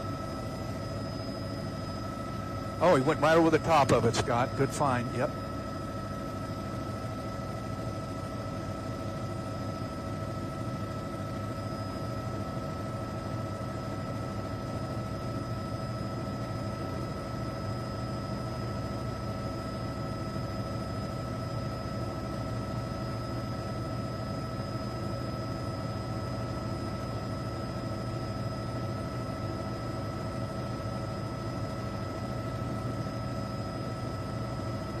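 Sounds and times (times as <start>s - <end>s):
constant whining tones: 0.0s - 19.4s
helicopter engine and rotor drone: 0.0s - 35.0s.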